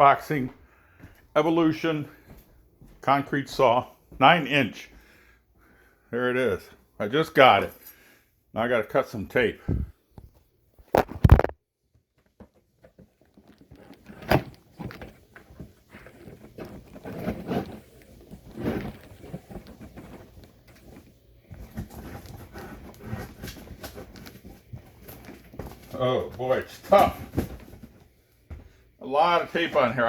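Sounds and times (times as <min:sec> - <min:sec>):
cardboard rustling: 0:12.5 - 0:28.2
packing tape scraping: 0:16.0 - 0:20.8.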